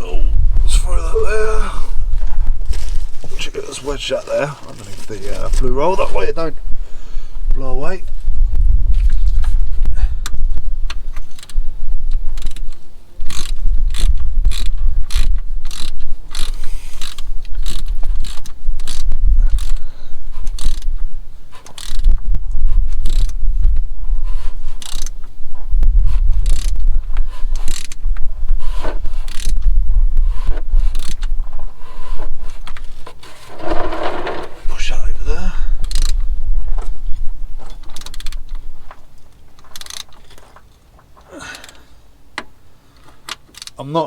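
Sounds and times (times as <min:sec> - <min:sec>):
wind rumble on microphone: 0:00.0 - 0:40.5.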